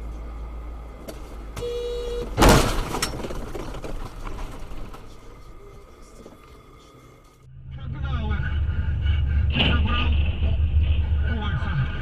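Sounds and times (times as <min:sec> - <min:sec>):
low road hum: 0:00.0 - 0:12.0
car horn: 0:01.6 - 0:02.5
loud crash of impact: 0:02.4 - 0:05.0.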